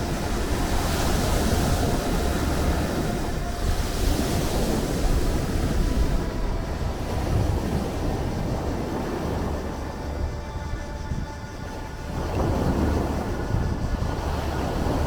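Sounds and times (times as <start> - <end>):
waves washing on shore: 0.0 - 10.3.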